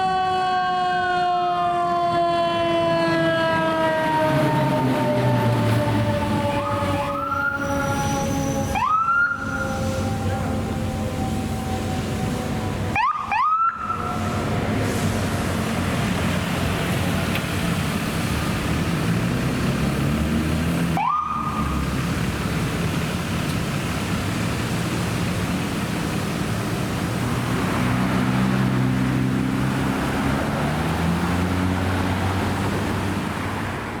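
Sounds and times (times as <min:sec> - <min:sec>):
short rising siren: 0:00.0 - 0:14.4, 0:20.9 - 0:21.9
diesel engines accelerating: 0:00.0 - 0:34.0.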